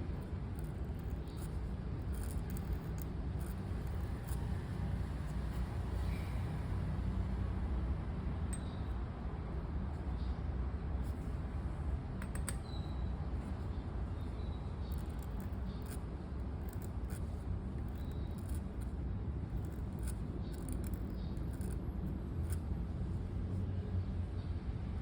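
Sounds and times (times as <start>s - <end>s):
faint bird chirps: 12.6s - 16.0s.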